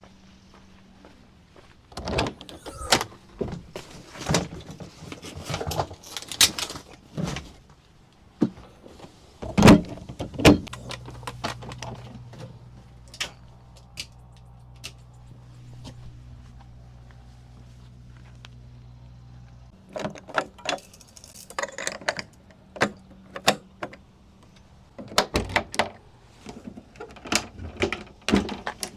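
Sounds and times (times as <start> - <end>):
steady low hum: 10.6 - 19.8.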